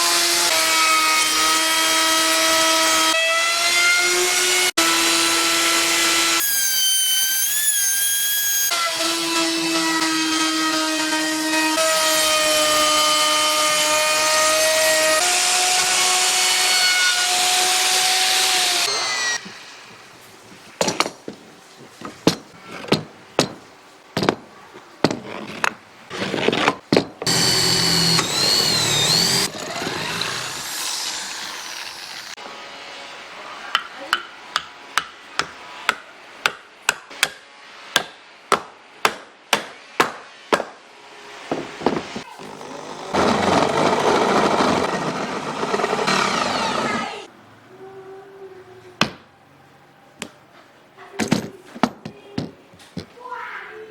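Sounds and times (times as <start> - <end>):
hand tool hammering: 22.0 - 25.8, 33.8 - 40.8
power tool motor running: 27.3 - 32.4, 42.4 - 47.3.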